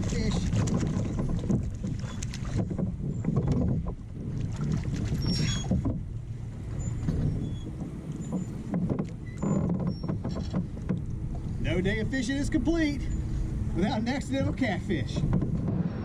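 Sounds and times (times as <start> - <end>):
small knocks on hull: 0.0 - 6.1, 7.0 - 11.5, 15.1 - 15.8
water slapping against kayak hull: 0.0 - 11.6, 14.4 - 16.0.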